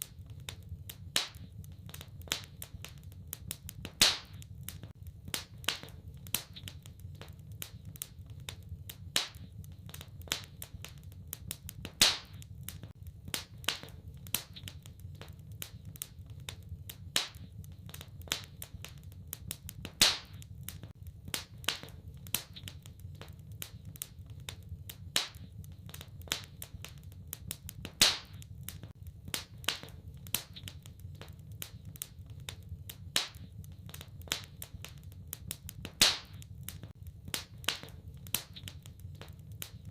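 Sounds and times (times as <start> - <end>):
low rumble of fire: 0.0 - 39.9
wood fire crackling: 0.0 - 39.9
loud fire pop: 3.9 - 4.4, 11.9 - 12.4, 19.9 - 20.4, 27.9 - 28.4, 35.9 - 38.6.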